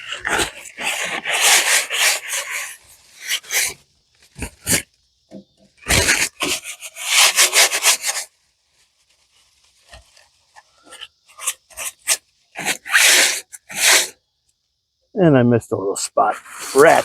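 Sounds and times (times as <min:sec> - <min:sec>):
wire brush scrubbing metal: 0:00.0 - 0:03.8, 0:05.8 - 0:08.3, 0:16.4 - 0:17.0.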